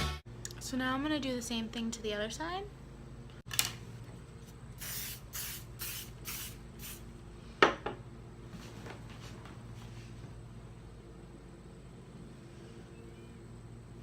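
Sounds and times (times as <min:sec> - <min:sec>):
spray bottle spritzing: 0:04.8 - 0:07.0.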